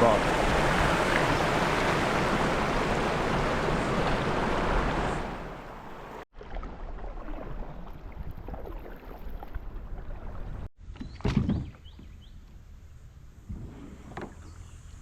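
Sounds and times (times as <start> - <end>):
paddle and hull noise: 0.0 - 12.2
water sloshing: 0.1 - 10.7.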